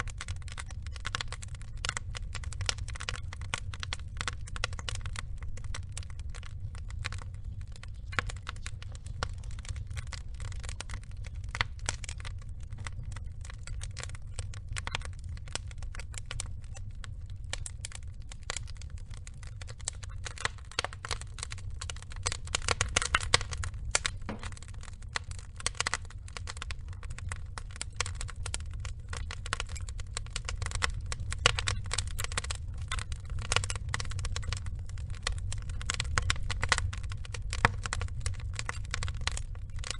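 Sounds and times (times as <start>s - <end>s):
logs crackling and popping: 0.0s - 39.9s
low rumble of fire: 0.0s - 39.9s.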